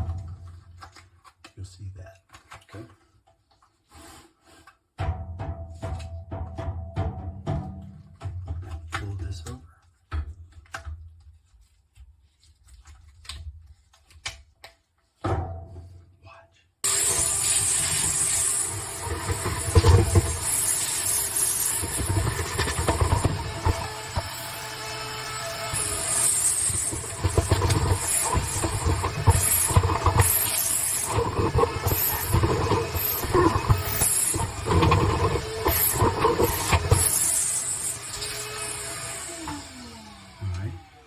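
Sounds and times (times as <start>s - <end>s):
vacuum cleaner running: 16.8s - 41.0s.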